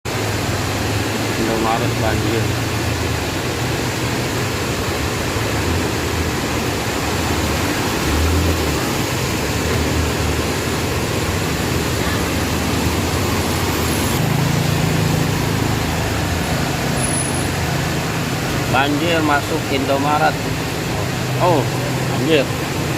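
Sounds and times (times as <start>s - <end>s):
vehicle engine running: 0.0s - 22.9s
heavy rain: 0.1s - 22.9s.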